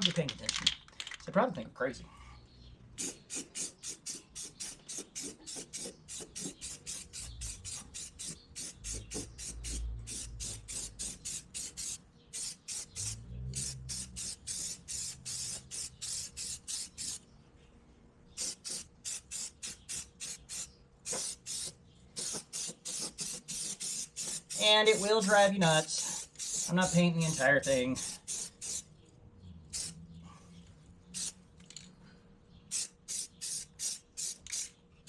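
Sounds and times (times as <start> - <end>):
spray can ball rattling: 3.0 - 17.2, 18.4 - 28.8, 29.7 - 29.9, 31.1 - 31.8, 32.7 - 34.7.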